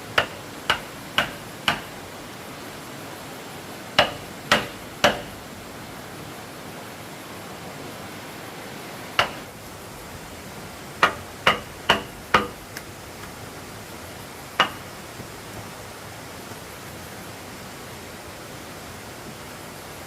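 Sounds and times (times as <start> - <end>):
hammering on wood: 0.0 - 2.1, 4.0 - 5.5, 9.2 - 9.5, 11.0 - 12.9, 14.6 - 15.3
steady hiss: 0.0 - 20.0.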